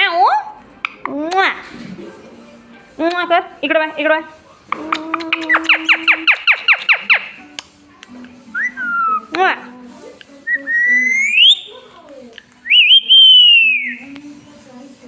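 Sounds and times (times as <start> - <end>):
parrot whistling: 4.7 - 7.4, 8.5 - 9.4, 10.4 - 11.9, 12.6 - 14.1
parrot squeaky call: 5.2 - 7.4, 10.9 - 11.7.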